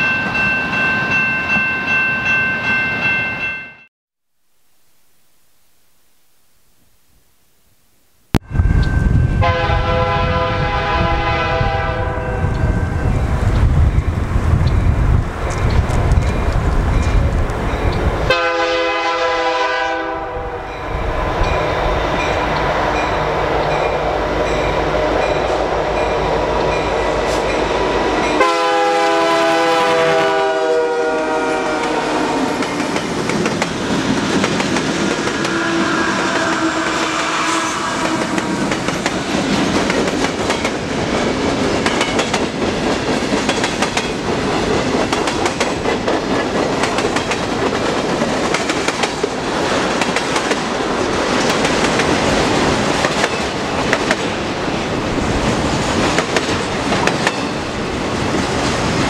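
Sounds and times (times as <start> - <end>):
diesel locomotives passing: 8.5 - 59.0
train air horn blasts: 9.4 - 12.4, 18.3 - 20.8, 26.3 - 32.6, 35.2 - 38.7.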